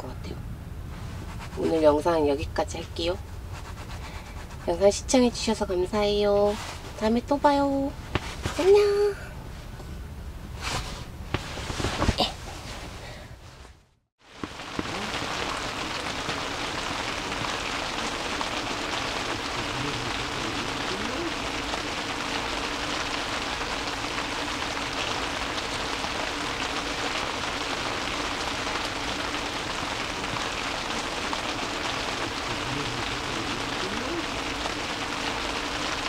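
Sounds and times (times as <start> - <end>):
rain falling on a tent: 6.3 - 9.1, 10.6 - 12.8, 14.2 - 36.0.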